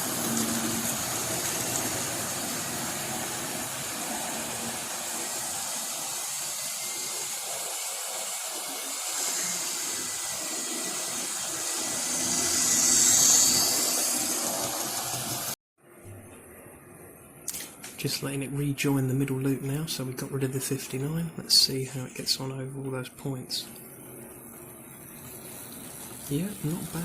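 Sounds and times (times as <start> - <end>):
model train motors whirring: 0.0 - 15.6, 24.9 - 27.0.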